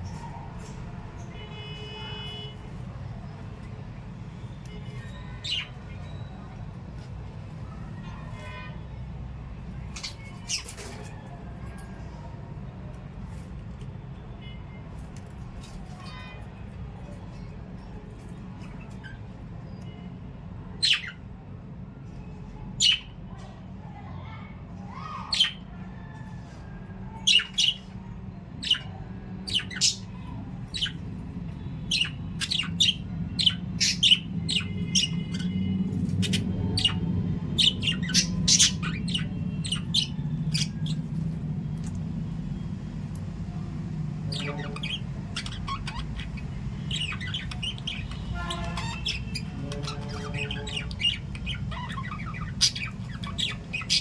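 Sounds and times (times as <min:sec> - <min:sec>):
parrots squawking: 0:27.2 - 0:27.8, 0:28.6 - 0:31.2, 0:31.8 - 0:42.0, 0:44.1 - 0:54.0.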